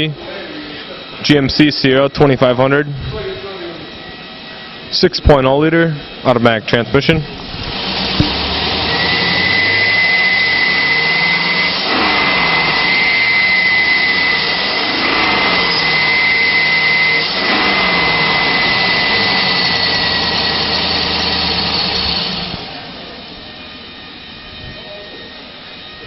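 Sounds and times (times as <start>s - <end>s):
high whine: 0.0s - 26.0s
truck engine running loudly: 7.2s - 25.2s.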